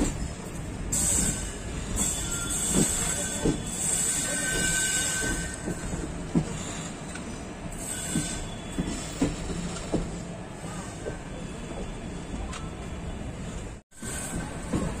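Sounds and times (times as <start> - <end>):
train coaches rolling: 0.0 - 15.0
faint high wheel squeal: 0.9 - 5.9, 6.5 - 9.8.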